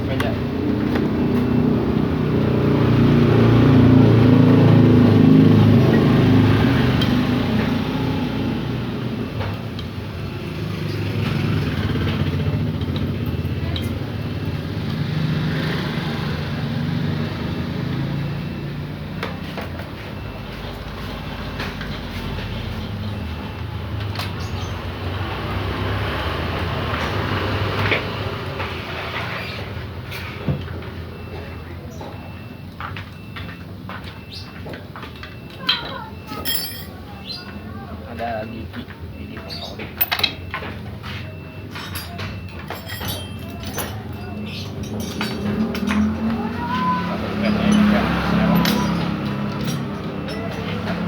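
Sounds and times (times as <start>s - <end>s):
motor vehicle engine running: 39.0s - 51.0s
clicks and knocks of tools: 40.0s - 40.8s, 41.7s - 46.3s.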